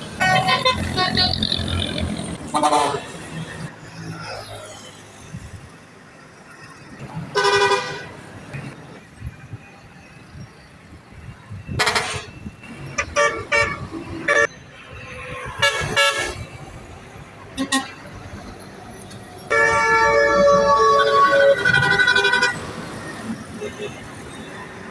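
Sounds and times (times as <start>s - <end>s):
truck horn: 0.2s - 1.1s, 2.5s - 3.2s, 7.3s - 8.1s, 11.7s - 12.4s, 13.0s - 14.5s, 15.6s - 16.4s, 17.6s - 18.0s, 19.5s - 22.6s.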